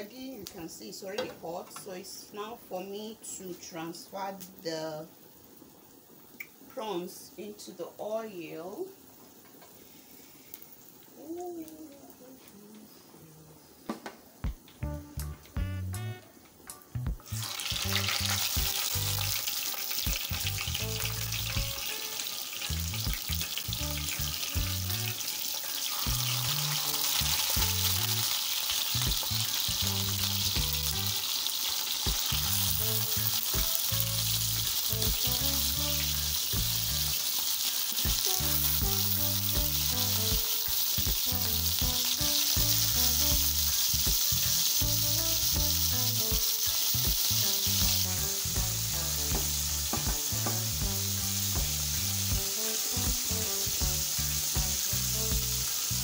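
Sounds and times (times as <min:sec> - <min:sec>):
prawns sizzling in hot oil: 0:00.0 - 0:13.0, 0:14.3 - 0:56.0
soft background music: 0:14.4 - 0:56.0.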